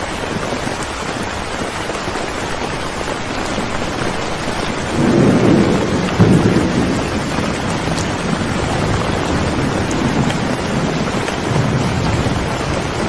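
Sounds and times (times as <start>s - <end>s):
heavy rain: 0.0s - 13.0s
thunder rumbling: 3.8s - 13.0s.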